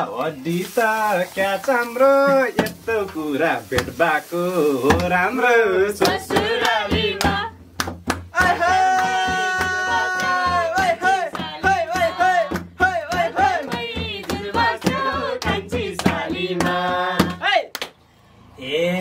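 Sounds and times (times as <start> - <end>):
voices singing folk song: 0.0 - 7.6, 8.2 - 17.6
hand claps: 6.0 - 18.0.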